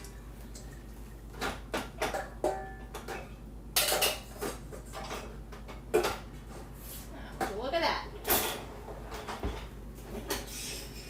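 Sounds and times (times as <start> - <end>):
dishes clinking in dishwasher rack: 1.4 - 6.3, 8.2 - 10.5
dishes rattling: 1.4 - 6.4.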